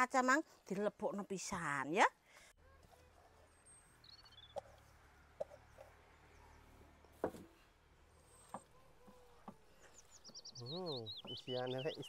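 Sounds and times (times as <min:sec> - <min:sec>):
faint bird chirps: 0:03.4 - 0:04.8, 0:08.2 - 0:12.0.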